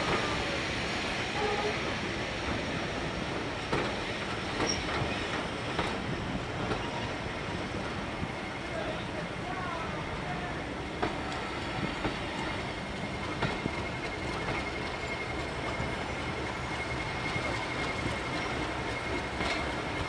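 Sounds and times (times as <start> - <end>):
train wheels rumbling on rail: 0.0 - 20.0
high wheel squeal: 4.5 - 5.3.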